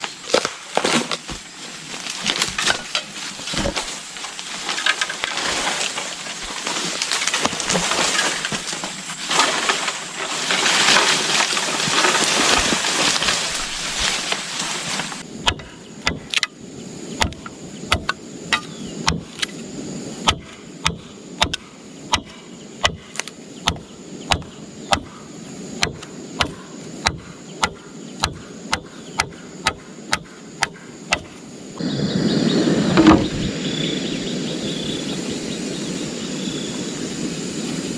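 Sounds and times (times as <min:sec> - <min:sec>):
rustling and crackling: 0:00.0 - 0:15.3
blade striking wood: 0:15.4 - 0:16.6, 0:17.2 - 0:19.6, 0:20.2 - 0:25.2, 0:25.8 - 0:31.4.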